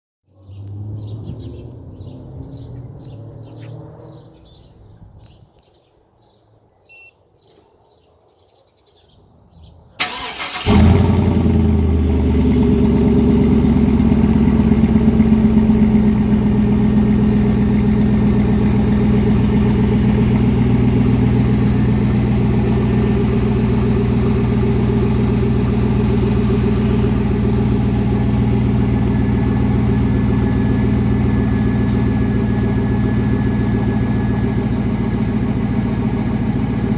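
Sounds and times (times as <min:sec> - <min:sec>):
car engine starting: 0:00.3 - 0:04.8, 0:10.0 - 0:36.9
faint bird chirps: 0:00.3 - 0:09.8
car engine idling: 0:10.0 - 0:36.9.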